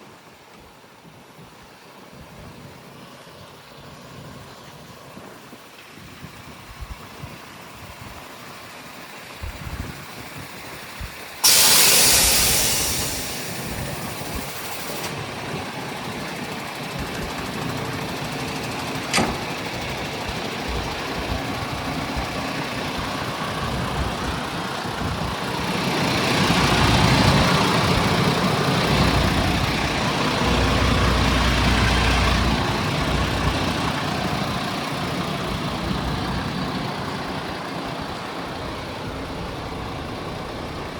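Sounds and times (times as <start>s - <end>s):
diesel truck engine running: 8.9s - 40.9s
truck air hiss: 10.9s - 15.9s, 20.5s - 37.0s.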